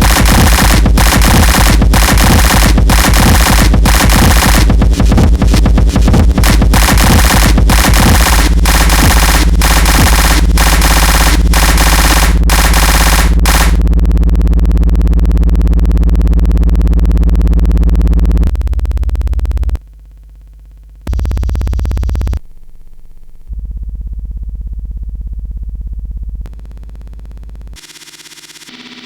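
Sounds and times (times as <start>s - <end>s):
harsh electronic noise: 0.0s - 13.8s, 21.1s - 22.4s, 26.5s - 29.0s
buzzing synthesizer drone: 0.0s - 29.0s.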